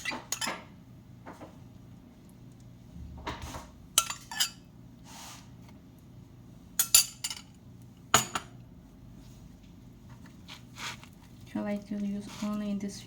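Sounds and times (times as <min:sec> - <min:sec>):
utensils clinking against dishes: 0:00.0 - 0:00.7, 0:04.0 - 0:04.6, 0:06.8 - 0:07.5.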